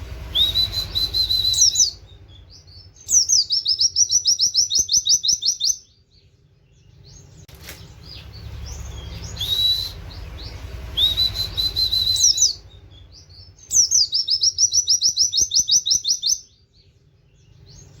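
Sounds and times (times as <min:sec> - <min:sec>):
held bird whistles: 0:00.0 - 0:05.9, 0:08.1 - 0:16.6
bird singing rapid high chirps: 0:00.0 - 0:18.0
soft bird chirps: 0:00.0 - 0:18.0.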